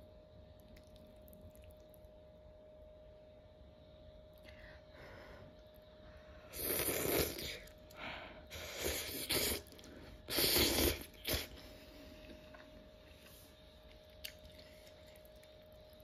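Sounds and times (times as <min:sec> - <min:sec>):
chewing food: 0:00.5 - 0:02.1, 0:12.2 - 0:16.0.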